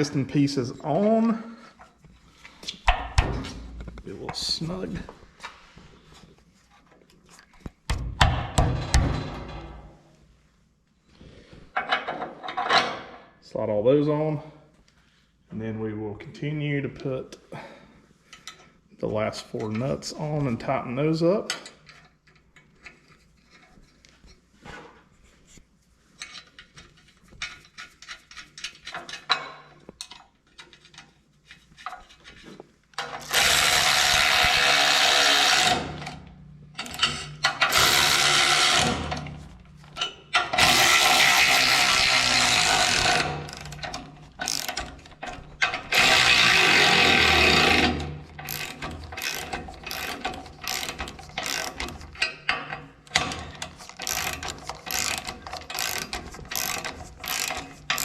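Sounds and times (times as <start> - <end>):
ratchet wrench: 33.0 - 36.2, 36.8 - 39.4, 40.0 - 58.0
nuts clicking on threaded rod: 40.0 - 58.0.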